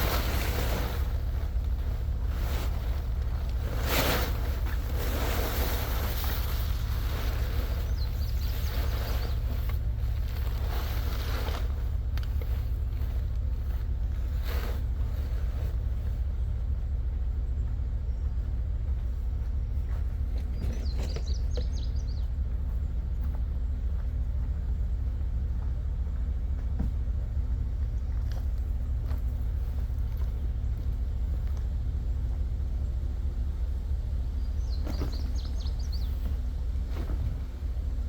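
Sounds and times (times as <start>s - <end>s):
truck engine rumbling: 0.0s - 38.0s
bird chirping: 5.8s - 10.1s, 17.3s - 24.0s, 34.4s - 36.7s.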